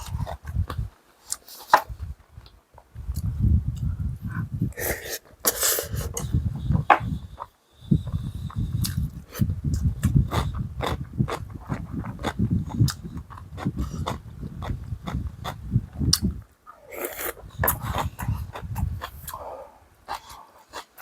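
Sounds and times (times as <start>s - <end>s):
person chewing: 7.2s - 21.0s
breathy noise: 16.7s - 21.0s.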